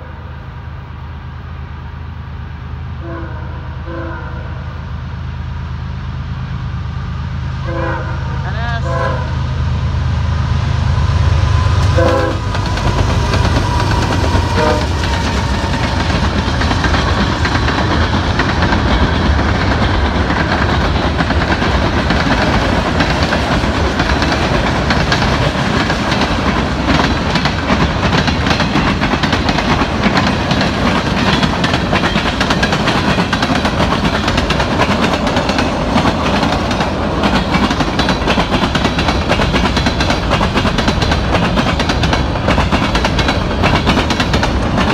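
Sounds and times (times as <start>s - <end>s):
locomotive engines rumbling: 0.0s - 44.9s
wheels clacking over rail joints: 11.8s - 44.9s.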